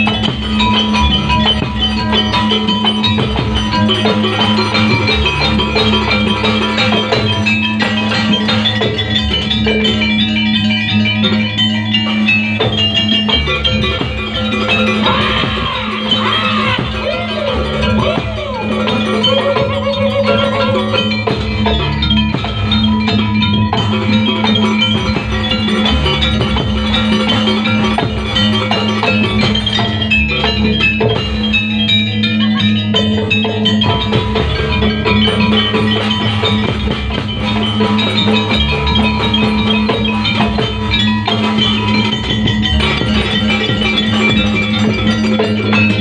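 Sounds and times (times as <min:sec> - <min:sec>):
hand drums: 0:00.0 - 0:46.0
metallophones and gongs: 0:00.0 - 0:46.0
wavering sliding melody: 0:00.0 - 0:46.0.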